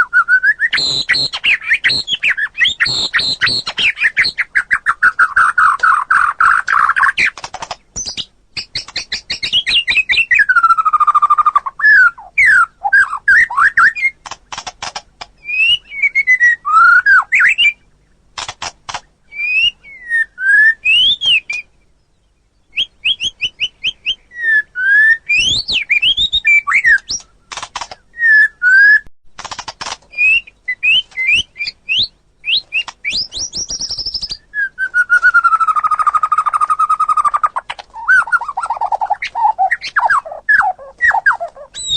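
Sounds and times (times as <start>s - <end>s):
bird singing whistled notes: 0.0s - 7.3s, 8.0s - 14.2s, 15.4s - 18.0s, 19.3s - 27.4s, 28.0s - 29.1s, 30.1s - 41.9s
bird clicking notes: 0.8s - 10.3s, 13.3s - 15.4s, 18.4s - 19.1s, 26.8s - 28.0s, 29.4s - 31.4s.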